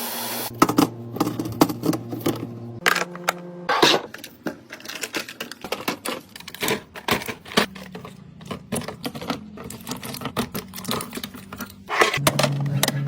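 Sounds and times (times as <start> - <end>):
plastic containers clicking: 0.5 - 13.0.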